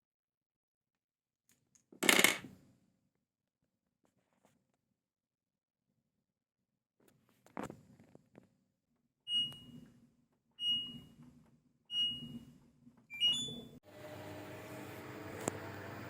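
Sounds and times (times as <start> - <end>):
washing machine motor whine: 13.2 - 16.0.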